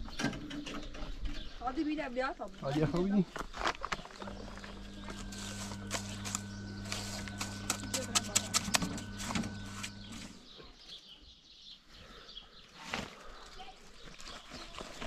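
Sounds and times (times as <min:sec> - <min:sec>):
steady low hum: 0:04.2 - 0:10.5.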